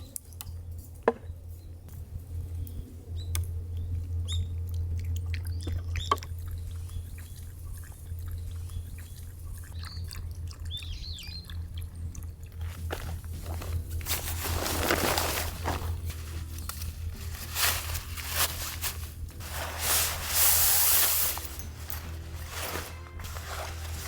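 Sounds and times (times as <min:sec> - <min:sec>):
small birds chirping: 0:00.0 - 0:14.8
steady low hum: 0:00.0 - 0:24.0.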